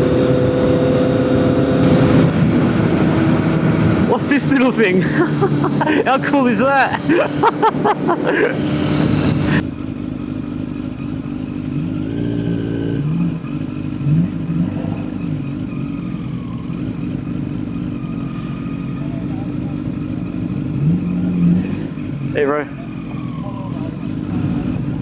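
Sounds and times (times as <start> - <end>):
loud wind rush: 0.0 - 9.7
motorcycle engine humming: 0.0 - 25.0.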